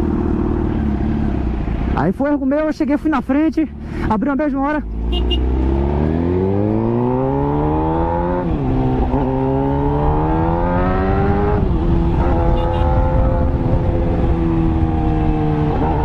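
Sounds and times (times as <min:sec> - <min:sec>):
motorcycle engine accelerating: 0:04.6 - 0:16.0.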